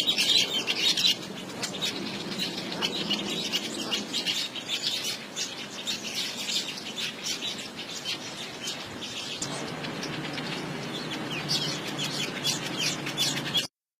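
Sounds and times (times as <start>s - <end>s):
small birds chirping: 0.0s - 13.7s
low steady hum: 9.4s - 13.7s.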